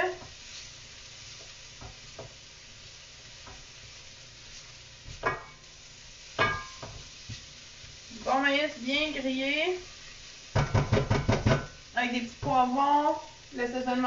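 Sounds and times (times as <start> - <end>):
corn sizzling in a wok: 0.0 - 14.0
utensil knocking against pan: 10.6 - 11.8.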